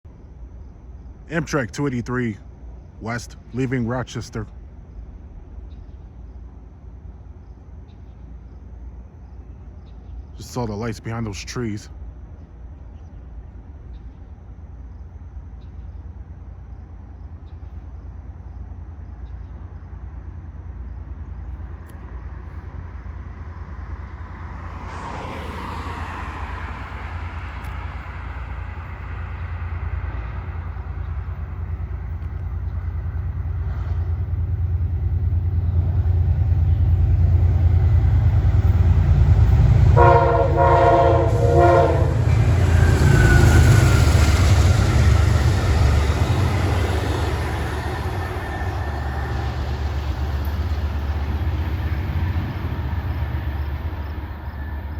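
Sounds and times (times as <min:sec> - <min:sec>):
locomotive engine rumble: 0:01.1 - 0:54.9
train horn blowing: 0:39.5 - 0:45.2.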